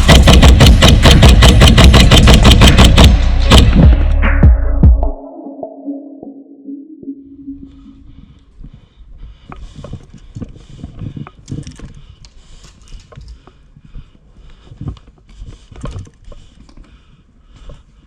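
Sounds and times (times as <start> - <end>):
low thumps: 0.0 - 5.7
footsteps: 7.7 - 18.0
equipment rattling: 9.6 - 17.0.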